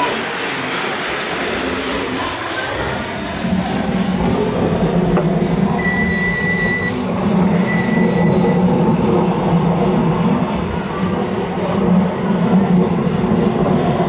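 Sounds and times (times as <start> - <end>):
high squeals: 0.0 - 8.7
train running with low hum: 0.0 - 14.0.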